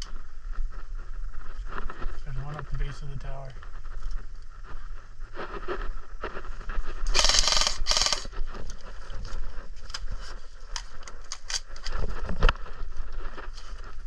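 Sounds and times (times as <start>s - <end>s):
airsoft gun bursts: 7.1s - 8.3s.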